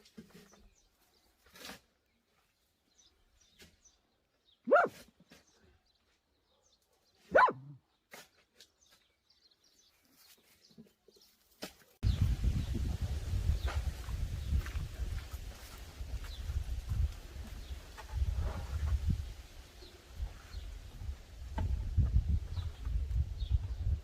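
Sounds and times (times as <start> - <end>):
dog barking: 4.7 - 5.0, 7.3 - 7.8.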